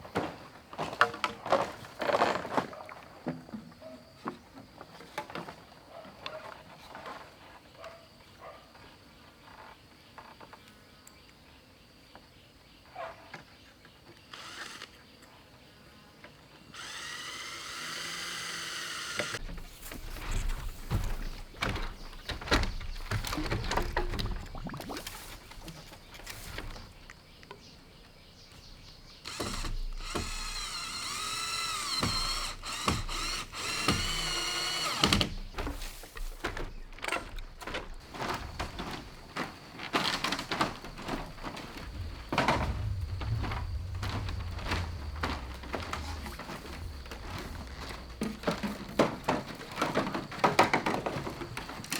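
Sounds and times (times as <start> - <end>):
handheld power tool whining: 16.8 - 21.4, 29.2 - 35.8
bamboo knocking and clattering: 19.3 - 27.7, 29.3 - 51.9.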